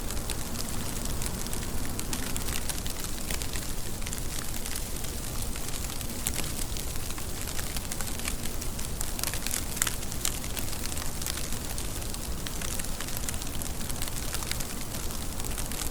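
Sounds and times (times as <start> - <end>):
raindrops clicking: 0.0 - 15.9
steady rain hiss: 0.0 - 15.9.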